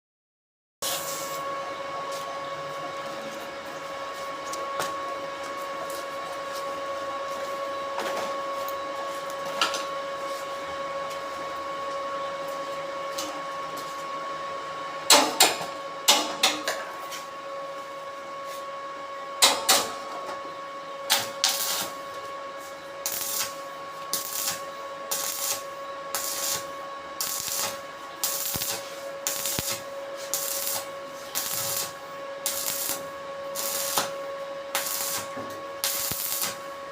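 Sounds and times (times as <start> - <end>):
machine hum with whine: 0.8 - 36.9.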